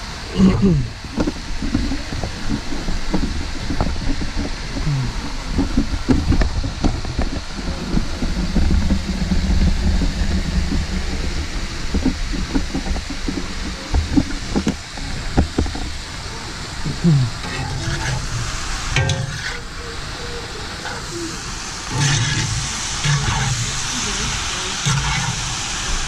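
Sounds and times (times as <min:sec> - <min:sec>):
wind rumble on microphone: 0:00.0 - 0:19.8
small crackles and knocks: 0:01.0 - 0:19.8
meat and onions sizzling: 0:01.1 - 0:26.0.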